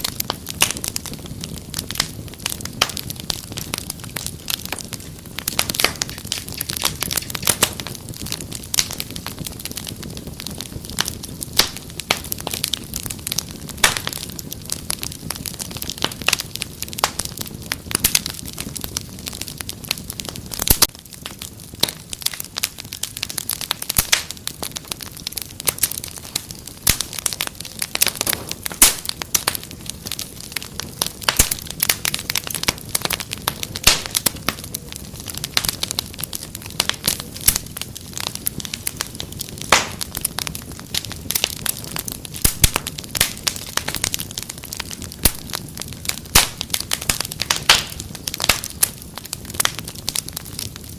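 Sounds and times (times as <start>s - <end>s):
wood fire crackling and popping: 0.0s - 50.9s.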